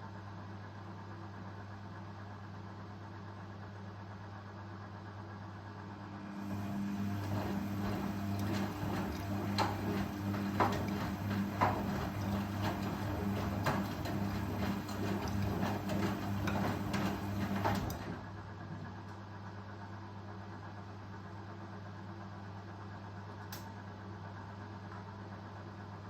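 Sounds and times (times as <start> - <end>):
washing machine hum: 4.3 - 26.0
washing machine knocks and clatters: 6.5 - 18.3.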